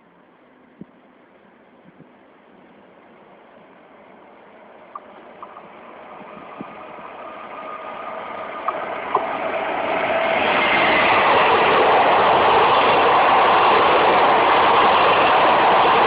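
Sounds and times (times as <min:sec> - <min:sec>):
train wheels on rails: 0:01.8 - 0:16.0
rail clicks and squeaks: 0:04.7 - 0:16.0.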